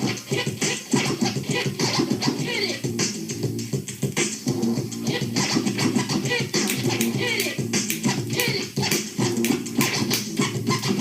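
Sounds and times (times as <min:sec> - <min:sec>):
hip hop drum beat and bass: 0:00.0 - 0:11.0
turntable scratching: 0:00.0 - 0:11.0.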